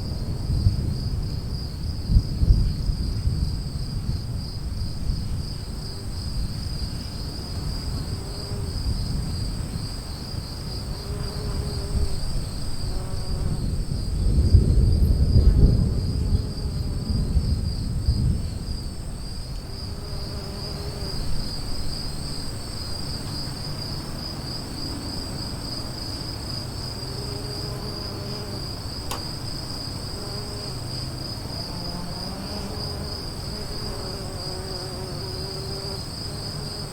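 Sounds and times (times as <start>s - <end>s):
low storm rumble: 0.0s - 10.9s, 11.8s - 20.1s
insects chirping: 0.0s - 36.9s.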